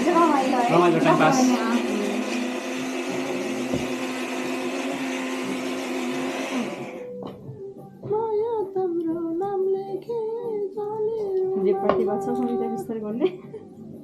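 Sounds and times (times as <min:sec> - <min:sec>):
electric motor appliance humming: 0:00.0 - 0:07.3
person singing: 0:06.9 - 0:12.9.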